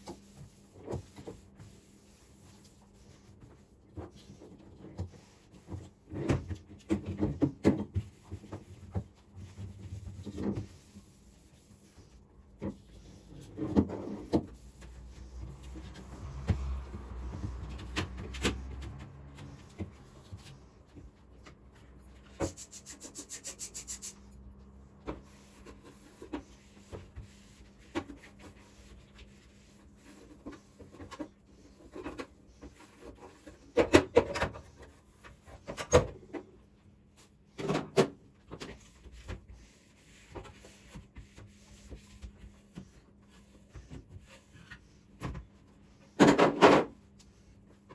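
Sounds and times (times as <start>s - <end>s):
rubbing and scraping: 0.0s - 24.3s.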